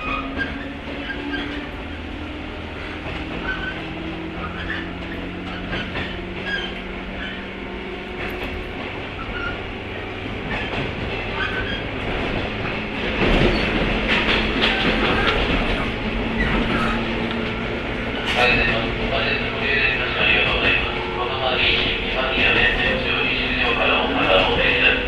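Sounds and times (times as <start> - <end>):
wheel squeals: 0.0 - 1.7, 3.4 - 7.6, 9.2 - 9.6, 10.5 - 12.1, 13.3 - 17.2
train running on rails: 0.0 - 25.0.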